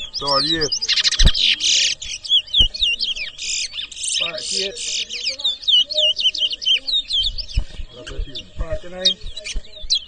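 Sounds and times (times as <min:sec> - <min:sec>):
finch singing whistled notes: 0:00.0 - 0:10.0.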